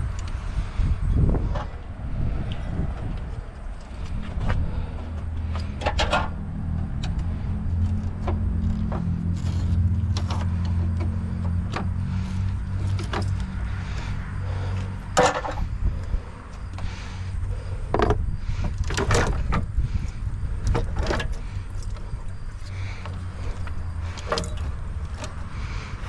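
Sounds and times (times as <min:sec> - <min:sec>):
low motor hum: 0:00.0 - 0:26.0
metallic clicks and knocks: 0:05.4 - 0:11.9.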